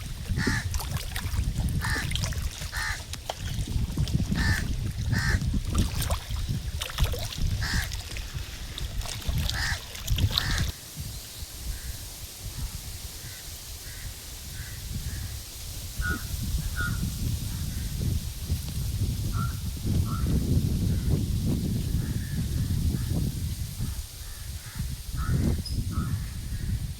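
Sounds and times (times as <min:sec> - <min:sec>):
birds calling: 0:04.4 - 0:05.4.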